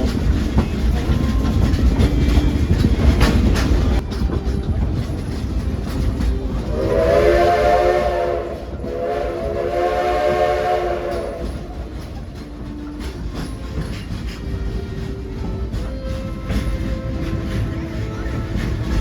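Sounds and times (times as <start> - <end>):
steam train clattering along track: 0.0 - 19.0
steam locomotive chime whistle: 6.5 - 13.2.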